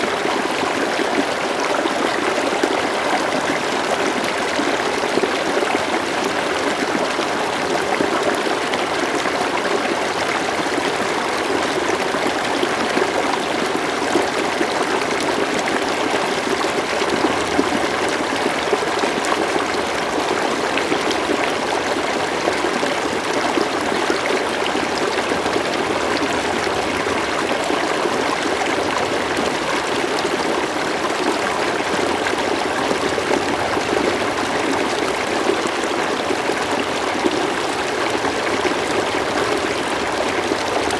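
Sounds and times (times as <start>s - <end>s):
river water flowing and babbling: 0.0s - 40.9s.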